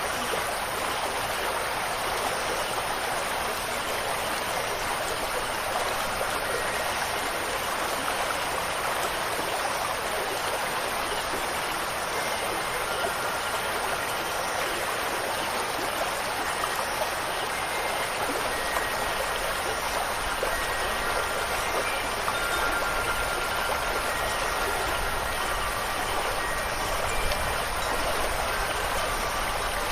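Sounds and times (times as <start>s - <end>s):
rushing water hiss: 0.0s - 29.9s.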